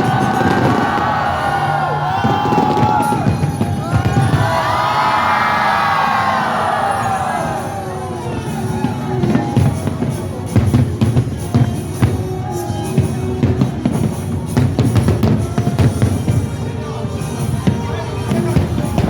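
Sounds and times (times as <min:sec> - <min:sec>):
crowd: 0:00.0 - 0:19.0
fireworks bangs and crackling: 0:00.0 - 0:19.0
music with heavy drum beat: 0:08.6 - 0:19.0.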